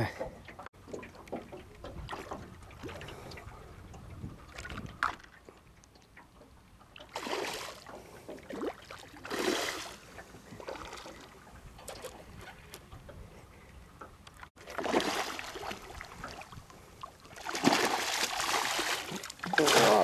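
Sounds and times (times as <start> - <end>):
low wind rumble: 1.6 - 5.2
fish splashing in water: 7.0 - 10.0, 14.6 - 20.0
lapping water: 14.7 - 20.0.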